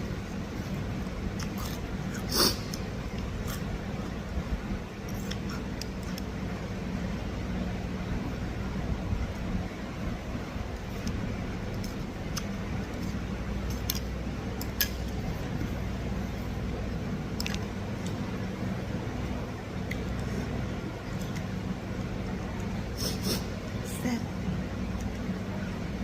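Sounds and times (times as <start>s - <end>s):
steady low hum: 0.0s - 26.0s
person chewing: 0.6s - 4.3s.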